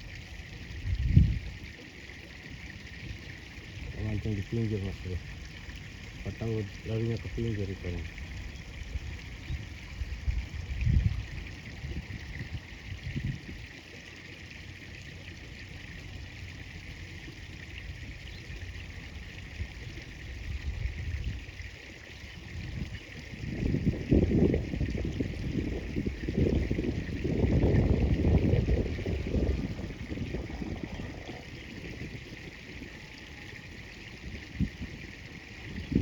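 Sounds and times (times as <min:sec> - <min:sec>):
river water flowing: 0:00.0 - 0:36.0
low rumbling bursts: 0:23.6 - 0:32.5.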